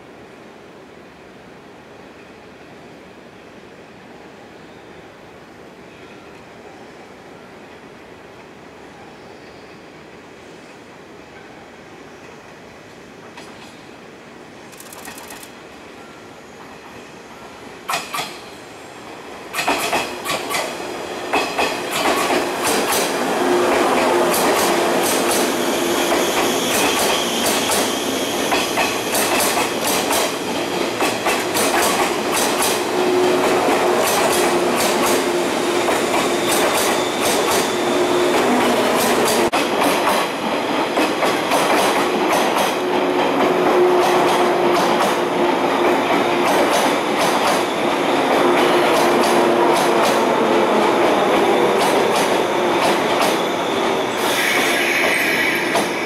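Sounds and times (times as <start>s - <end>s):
train wheels clacking over joints: 19.5s - 23.2s, 23.8s - 45.2s, 45.8s - 47.8s, 48.4s - 50.4s, 51.1s - 56.0s.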